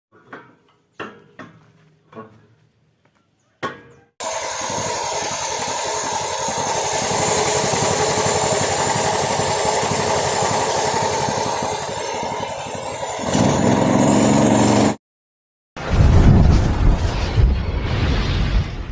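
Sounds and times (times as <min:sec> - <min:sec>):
sawmill engine running: 0:04.2 - 0:15.0.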